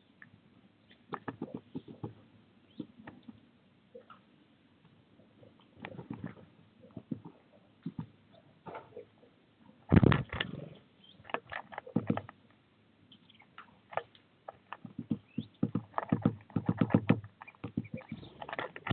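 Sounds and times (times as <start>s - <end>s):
bird feet and beak tapping on feeder: 13.9s - 18.9s.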